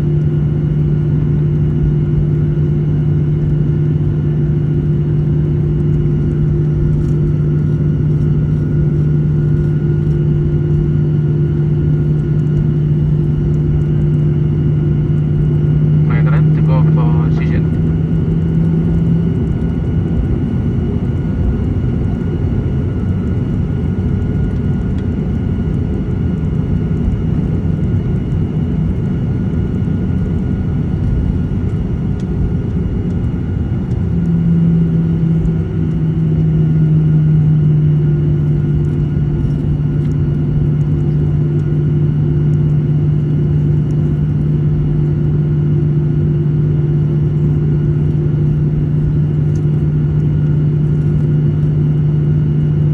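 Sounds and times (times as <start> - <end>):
jet engines rumbling in cabin: 0.0 - 52.9.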